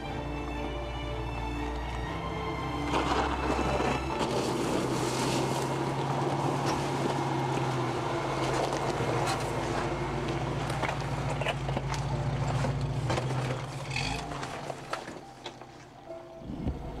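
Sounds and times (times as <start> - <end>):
knocks and rattles from rough ground: 2.8 - 16.0
car engine at low revs: 3.1 - 15.8.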